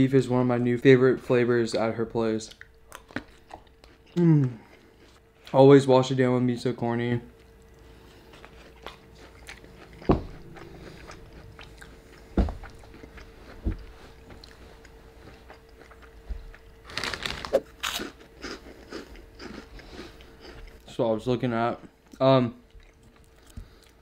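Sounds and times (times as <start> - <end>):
person chewing food: 2.5 - 5.6, 7.3 - 20.8, 21.8 - 24.0
soft thumps: 10.0 - 10.5, 12.3 - 12.8, 13.6 - 14.4.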